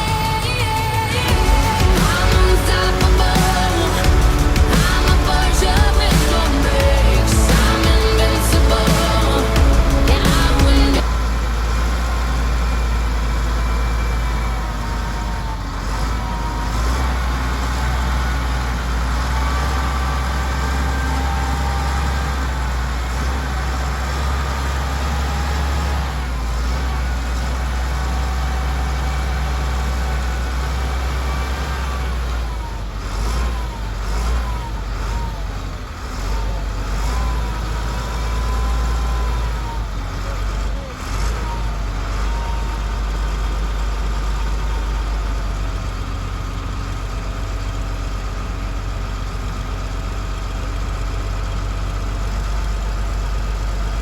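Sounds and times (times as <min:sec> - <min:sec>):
high engine whine: 0:00.0 - 0:24.0
diesel engine rumbling: 0:00.0 - 0:54.0.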